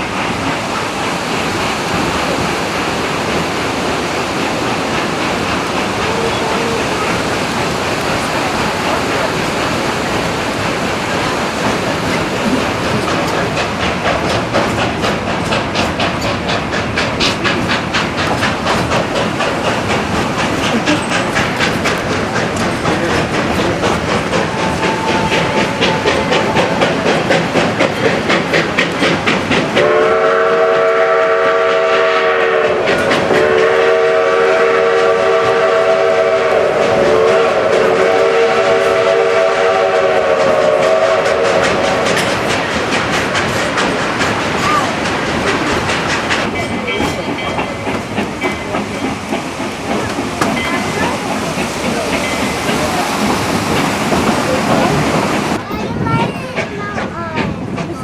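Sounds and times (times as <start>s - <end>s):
steam locomotive chuffing: 0.0s - 58.0s.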